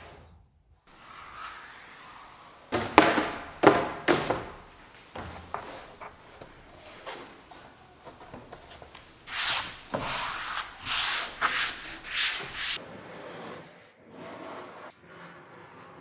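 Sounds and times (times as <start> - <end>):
hand sanding wood: 0.9 - 12.8
handling knocks: 0.9 - 12.8.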